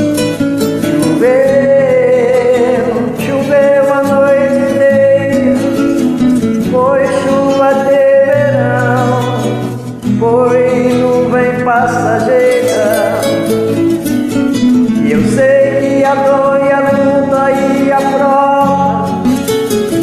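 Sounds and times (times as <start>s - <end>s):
backing track with guitar: 0.0s - 20.0s
person singing long held notes: 0.9s - 6.0s, 10.2s - 13.5s.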